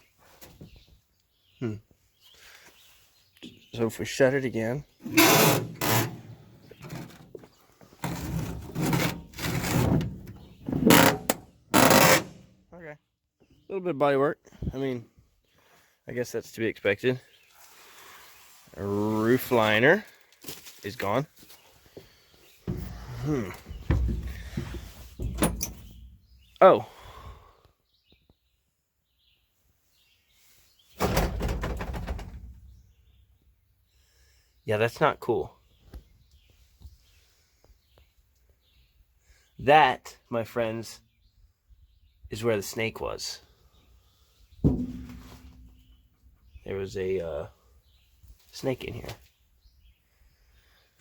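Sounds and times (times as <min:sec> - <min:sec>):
loud rustling and scraping: 0:05.0 - 0:12.4, 0:22.6 - 0:26.0, 0:44.6 - 0:45.9
rattling and handling noise: 0:05.0 - 0:12.4, 0:22.7 - 0:26.0, 0:44.6 - 0:46.0
glove box door banging: 0:08.0 - 0:12.4, 0:22.7 - 0:26.0, 0:31.0 - 0:32.6, 0:44.6 - 0:45.7.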